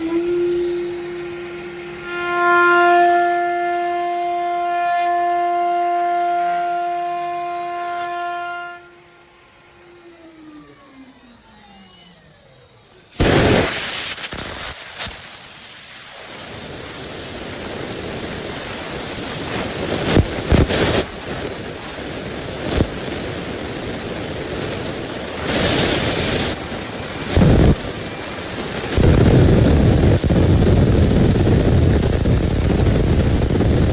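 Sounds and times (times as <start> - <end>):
saw blade cutting hiss: 22.0 - 29.8.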